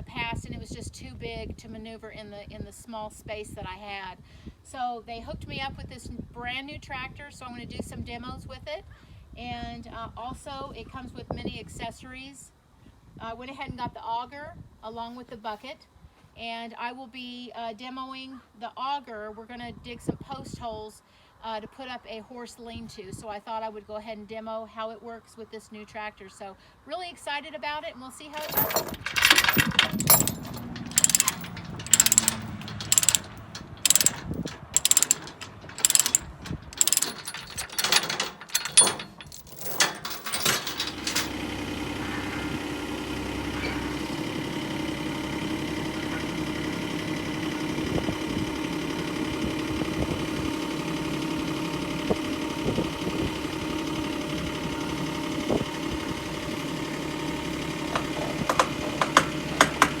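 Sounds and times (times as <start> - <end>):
sharp clicks and knocks: 28.4 - 41.3
tractor engine running: 28.4 - 60.0.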